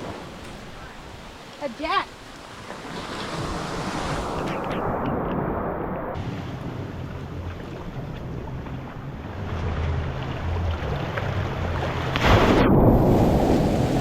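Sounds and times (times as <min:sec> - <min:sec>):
surf washing on rocky shore: 0:00.0 - 0:14.0
low steady drone: 0:04.4 - 0:14.0.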